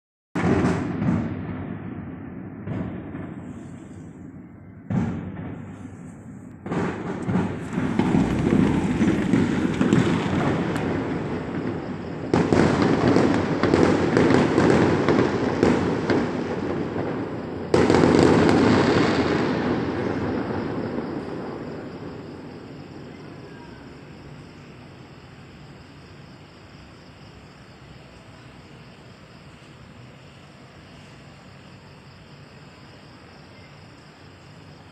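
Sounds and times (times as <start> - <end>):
fireworks bangs and crackles: 0.4 - 33.0
faint background hiss: 18.3 - 34.9.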